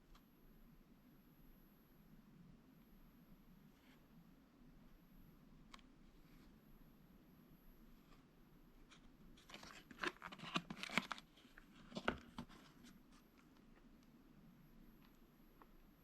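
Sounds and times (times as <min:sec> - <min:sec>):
quiet handling noise: 0:07.9 - 0:16.0
packaging crinkling and tearing: 0:09.4 - 0:12.4.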